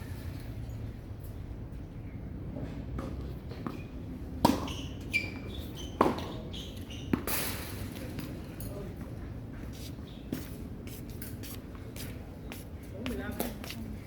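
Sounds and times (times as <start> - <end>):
shoe squeak: 4.6 - 7.6.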